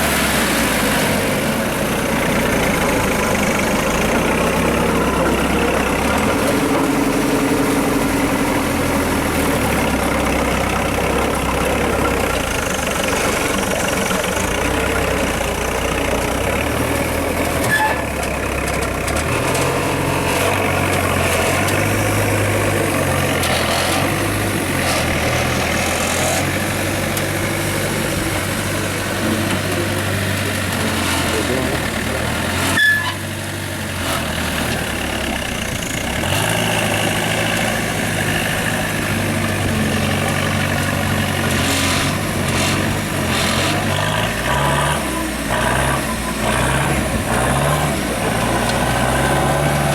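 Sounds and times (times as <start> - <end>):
truck engine revving: 0.0 - 49.9.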